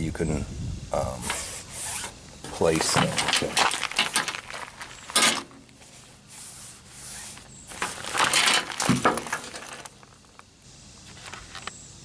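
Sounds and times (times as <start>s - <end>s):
fabric rustling: 3.1s - 10.3s.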